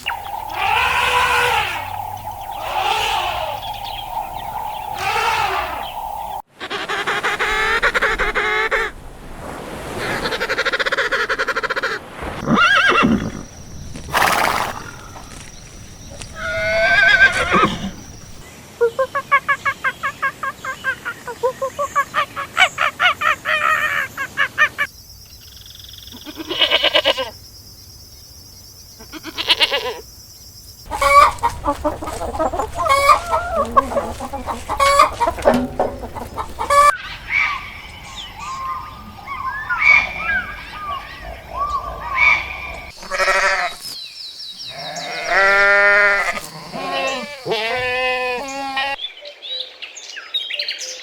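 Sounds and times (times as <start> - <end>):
quick repeated pulsing calls: 0.0 - 6.4, 30.9 - 36.9
farm animal calls: 0.0 - 9.0, 10.0 - 18.4, 30.9 - 44.0, 44.6 - 49.0.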